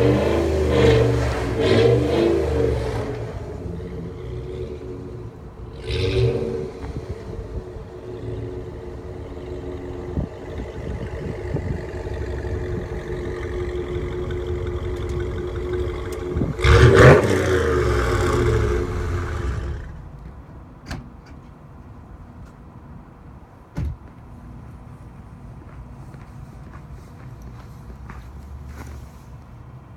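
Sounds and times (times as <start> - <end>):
vee-eight engine revving: 0.0 - 20.1.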